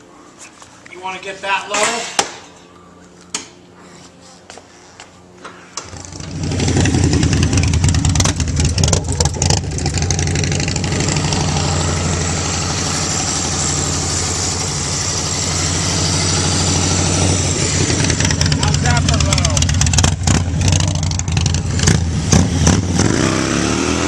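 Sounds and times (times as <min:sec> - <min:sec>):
motorcycle engine revving and idling: 0:05.8 - 0:24.0.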